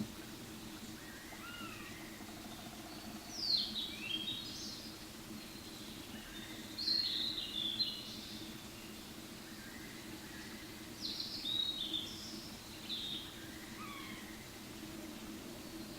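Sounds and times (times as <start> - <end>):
faint distant bird calls: 0.0 - 4.6, 9.4 - 15.9
bird calling: 13.7 - 14.4.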